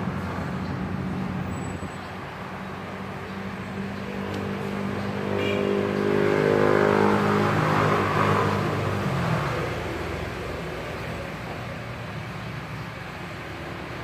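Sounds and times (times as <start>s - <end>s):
vehicle engine passing by: 3.8s - 10.6s.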